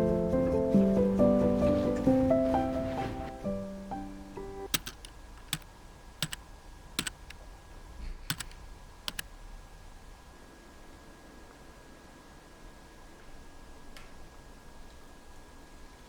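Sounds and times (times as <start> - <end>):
soft music notes: 0.0 - 4.7
light sharp clicks: 4.7 - 6.4, 7.0 - 7.4, 8.0 - 9.3.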